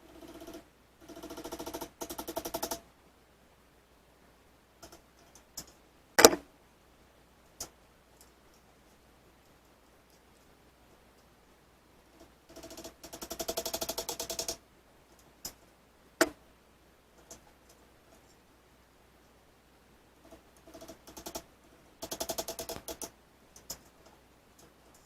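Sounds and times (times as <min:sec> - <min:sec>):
sharp clicks: 0:22.0 - 0:23.9.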